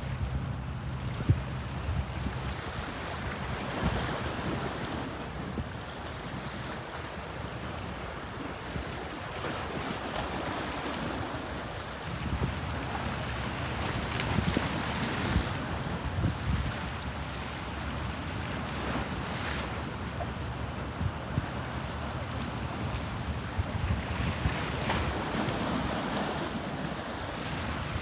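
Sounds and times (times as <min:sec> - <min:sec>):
wind buffeting microphone: 0:00.0 - 0:06.4, 0:12.1 - 0:17.3, 0:20.7 - 0:28.0.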